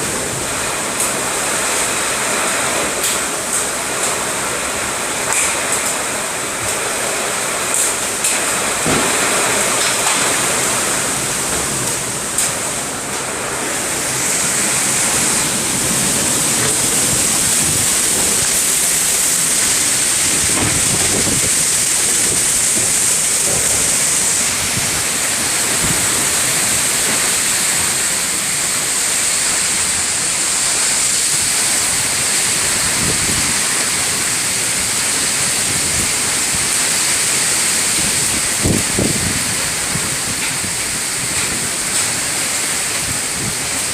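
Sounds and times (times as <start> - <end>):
heavy rain pouring: 0.0 - 43.9.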